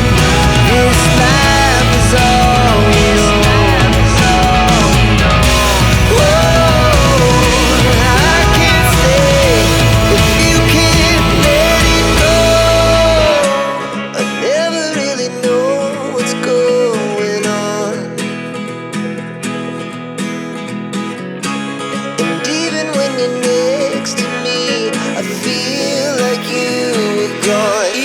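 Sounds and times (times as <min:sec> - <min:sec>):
deep bass: 0:00.0 - 0:13.4
guitar background music: 0:00.0 - 0:28.0.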